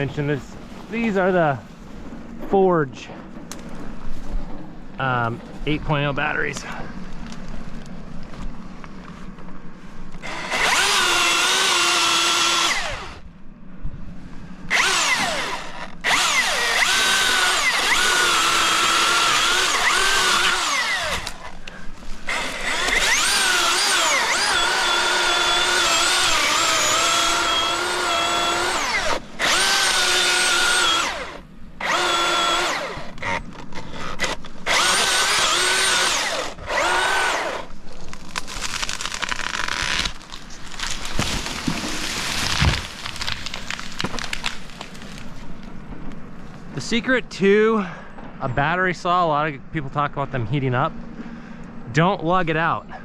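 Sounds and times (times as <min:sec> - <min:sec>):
electric chainsaw cutting wood: 0:10.2 - 0:13.2, 0:14.7 - 0:45.2.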